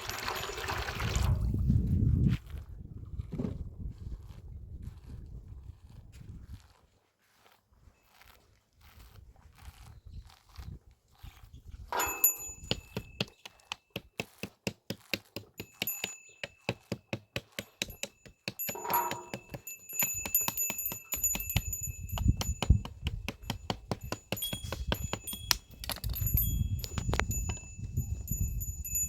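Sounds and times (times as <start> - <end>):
small metal bell clanking: 0.0 - 0.7, 11.9 - 13.4, 15.5 - 29.0.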